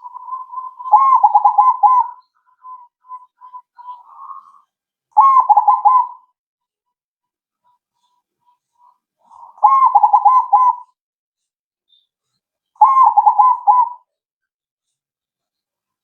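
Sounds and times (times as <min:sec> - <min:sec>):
dove cooing: 0:00.0 - 0:04.6, 0:05.2 - 0:06.2, 0:09.3 - 0:10.9, 0:12.8 - 0:14.1.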